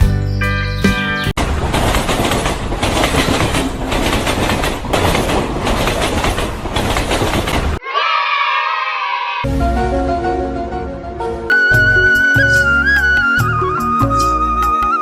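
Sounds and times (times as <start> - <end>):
loud rhythmic clattering: 1.4 - 7.8
brief falling tone: 11.5 - 15.0.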